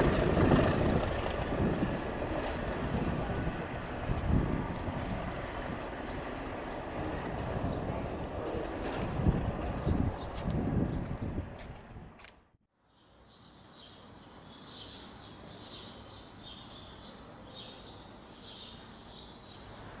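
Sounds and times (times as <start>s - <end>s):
rumble: 0.0s - 12.3s
small birds chirping: 0.1s - 9.0s, 12.8s - 20.0s.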